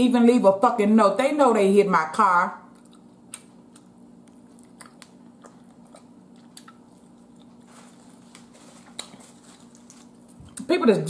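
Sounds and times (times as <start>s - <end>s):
faint steady hum: 0.0s - 11.0s
person chewing with wet smacks: 2.7s - 7.7s, 8.3s - 10.7s.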